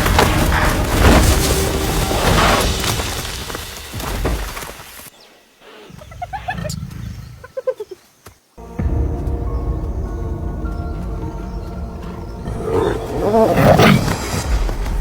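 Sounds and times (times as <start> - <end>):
crashing shattering impacts: 0.0 - 5.1.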